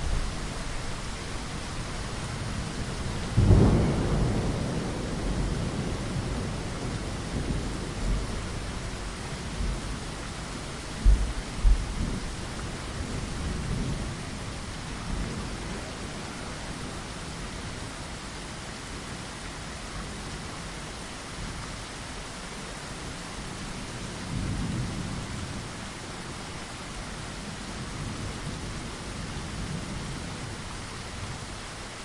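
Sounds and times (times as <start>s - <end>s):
rain against a window: 0.0s - 32.0s
thunder rumbling: 2.8s - 9.9s, 11.0s - 12.4s.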